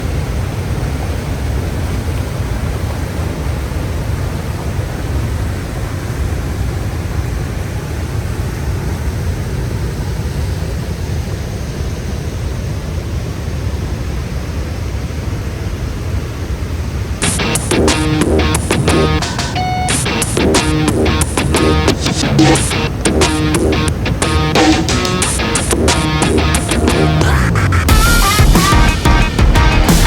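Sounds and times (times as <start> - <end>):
waterfall rushing: 17.2 - 30.0.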